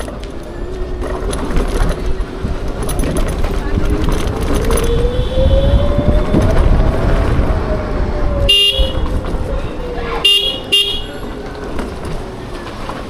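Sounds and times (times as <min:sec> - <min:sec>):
road rumble: 0:00.0 - 0:13.0
wind: 0:00.0 - 0:13.0
electric scooter motor whining: 0:00.2 - 0:11.8
vehicle horn honking: 0:08.5 - 0:09.2, 0:10.1 - 0:11.3.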